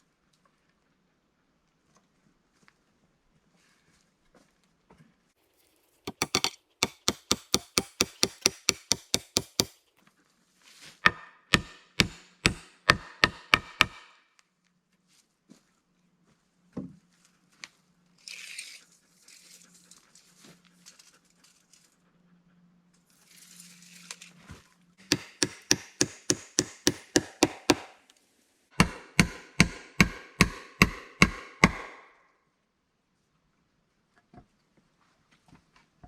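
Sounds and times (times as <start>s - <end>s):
hand tool striking wood: 6.1s - 9.8s, 11.0s - 14.2s, 25.0s - 28.0s, 28.8s - 32.1s.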